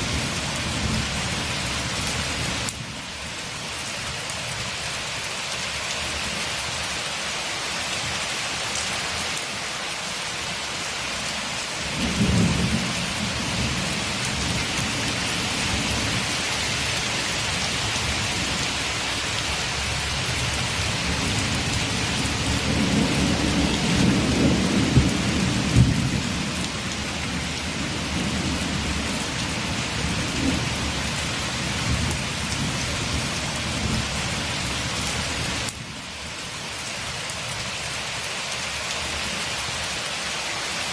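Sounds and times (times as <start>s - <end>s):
heavy rain hissing: 0.0s - 40.9s
thunder rumbling: 11.9s - 19.3s, 20.3s - 34.3s.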